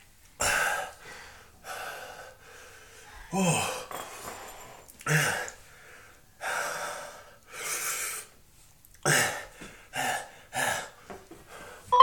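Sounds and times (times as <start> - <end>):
man gasping heavily: 0.4 - 8.3.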